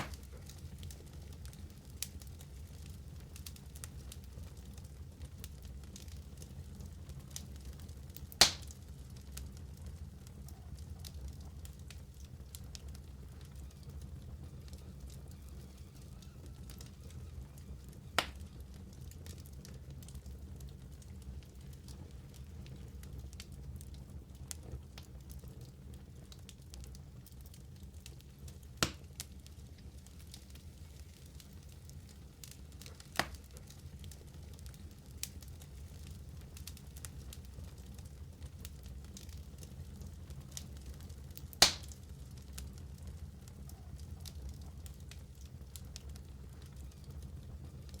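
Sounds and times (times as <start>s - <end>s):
loud pop from fire: 0.0s - 0.6s, 8.4s - 8.8s, 18.1s - 18.5s, 28.8s - 29.3s, 32.8s - 33.6s, 41.4s - 42.0s
fire crackling: 0.0s - 48.0s
fire flames rumbling: 0.0s - 48.0s.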